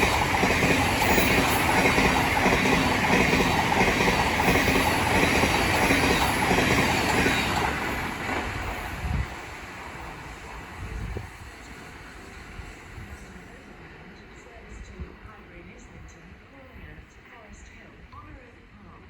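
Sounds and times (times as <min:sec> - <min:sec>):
train wheels clattering over rail joints: 0:00.0 - 0:08.9.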